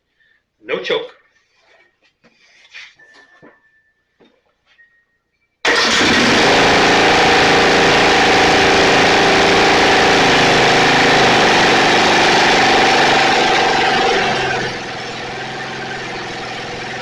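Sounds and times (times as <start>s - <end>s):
riding mower engine running: 5.7s - 17.0s.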